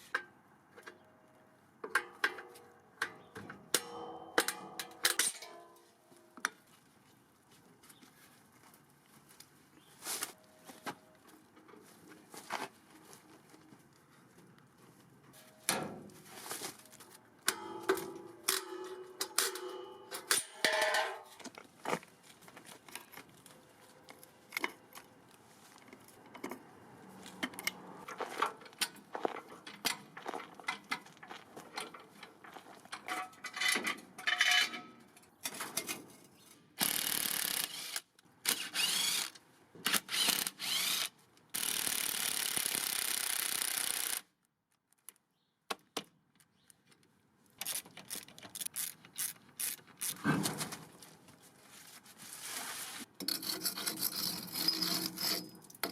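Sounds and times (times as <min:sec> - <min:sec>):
metal clanks and scrapes: 0:01.9 - 0:06.3, 0:15.3 - 0:21.6, 0:27.2 - 0:36.8, 0:47.7 - 0:51.0, 0:52.6 - 0:55.9
struck metal ringing: 0:03.8 - 0:05.8, 0:17.5 - 0:21.3.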